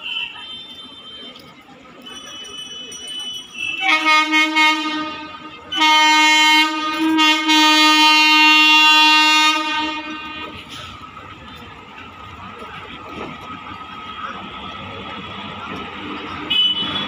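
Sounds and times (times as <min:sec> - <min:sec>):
locomotive horn blasts: 0:03.6 - 0:10.7, 0:16.3 - 0:17.0.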